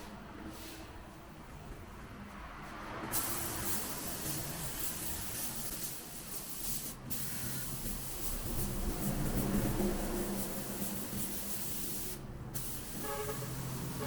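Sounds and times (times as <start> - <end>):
spray paint hissing: 3.1 - 14.0.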